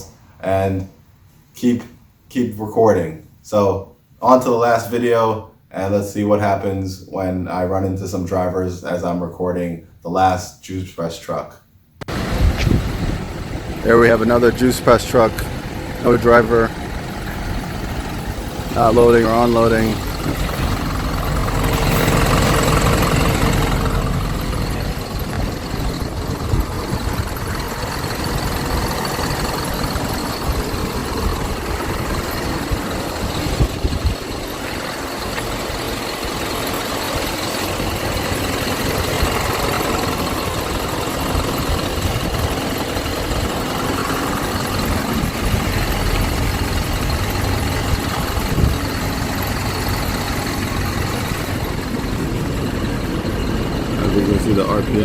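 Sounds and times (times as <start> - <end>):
truck engine idling: 12.0 - 55.0.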